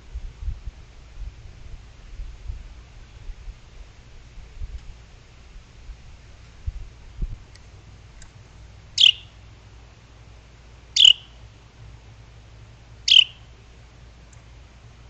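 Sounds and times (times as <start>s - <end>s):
bird calling: 9.0s - 9.4s, 11.0s - 11.4s, 13.0s - 13.5s.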